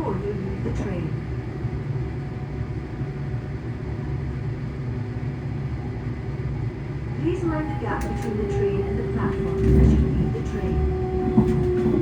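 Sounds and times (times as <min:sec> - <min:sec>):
rumble of running train: 0:00.0 - 0:12.0
traction motor hum: 0:07.0 - 0:12.0.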